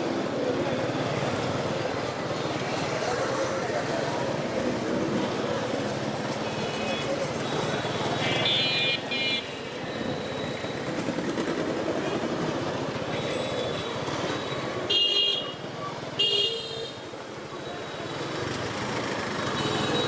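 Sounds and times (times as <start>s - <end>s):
traffic engine and road rumble: 0.0s - 20.0s
vehicle horns tooting: 7.6s - 9.6s, 14.9s - 15.6s.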